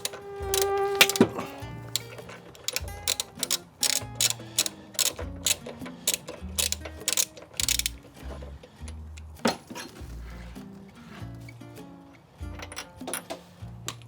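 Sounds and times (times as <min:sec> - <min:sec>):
ratchet wrench clicking: 0:00.0 - 0:08.1
background music: 0:00.0 - 0:14.0.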